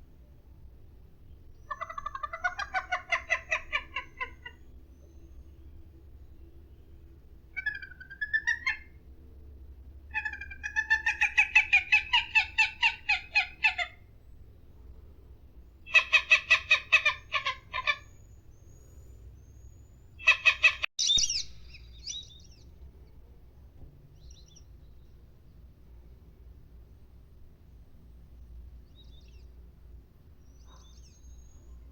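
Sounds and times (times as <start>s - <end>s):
bird calling quick repeated notes: 20.2s - 22.3s.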